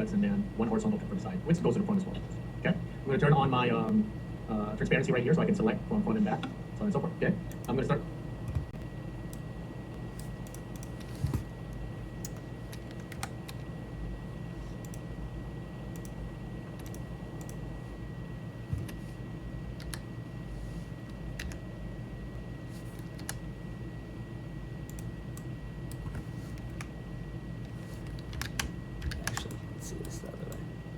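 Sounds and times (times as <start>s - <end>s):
steady low hum: 0.0s - 30.9s
keyboard and mouse clicks: 12.2s - 13.7s, 16.8s - 17.6s, 19.8s - 20.1s, 21.4s - 21.6s, 22.9s - 23.4s, 28.0s - 30.2s.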